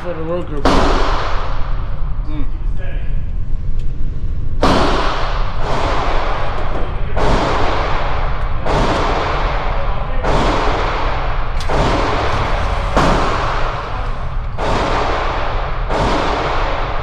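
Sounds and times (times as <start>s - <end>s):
echoing gunshots: 8.7s - 17.0s.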